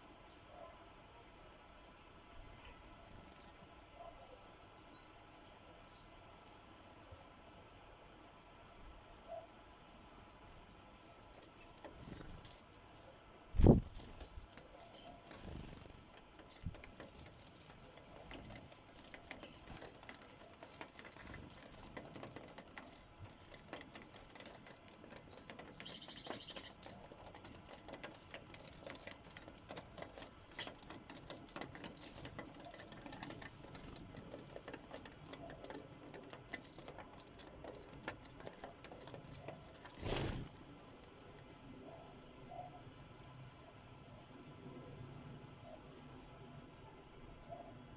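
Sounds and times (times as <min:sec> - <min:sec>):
sparrows pecking at feeder: 0:07.0 - 0:43.5.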